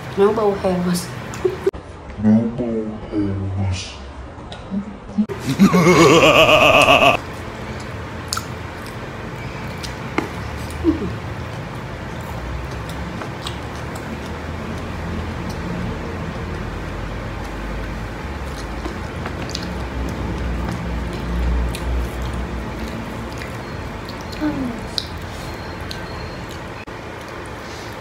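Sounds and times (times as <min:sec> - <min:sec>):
people chewing food: 0:05.4 - 0:28.0
mouth clicks and smacks: 0:08.3 - 0:09.0, 0:12.7 - 0:14.8.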